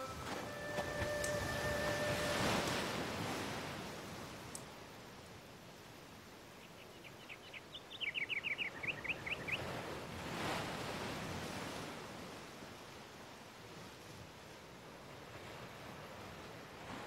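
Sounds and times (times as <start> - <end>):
steady hiss: 0.0 - 7.4
bird chirping: 6.6 - 9.6.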